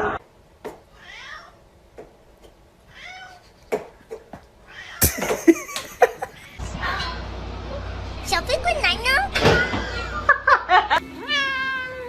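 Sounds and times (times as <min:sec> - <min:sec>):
cat meowing: 0:01.0 - 0:01.6, 0:02.9 - 0:03.4, 0:04.7 - 0:05.0, 0:11.2 - 0:12.0.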